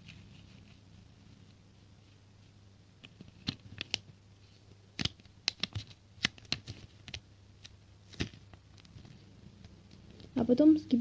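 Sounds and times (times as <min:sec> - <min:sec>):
paper folding and creasing: 0:03.0 - 0:09.2.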